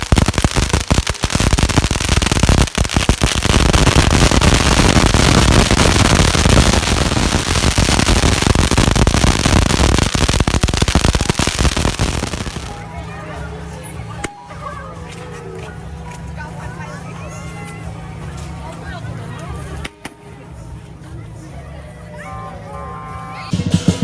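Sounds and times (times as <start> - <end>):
firecrackers crackling: 0.0 - 12.9, 23.5 - 24.0.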